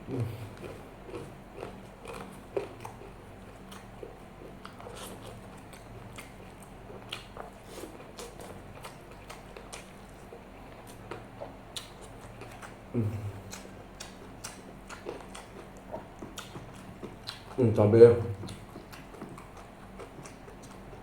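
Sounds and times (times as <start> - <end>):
low steady hum: 0.0 - 21.0
person chewing food: 0.0 - 21.0.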